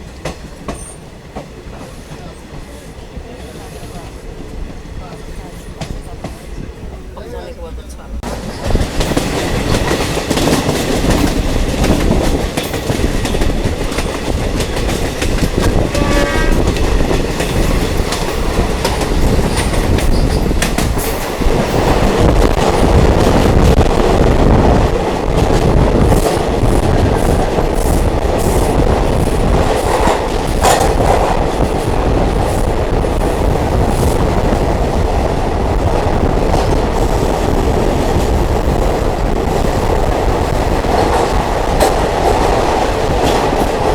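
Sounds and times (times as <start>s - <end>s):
train rumbling: 0.0s - 43.9s
wheels clattering over rail joints: 8.2s - 23.9s.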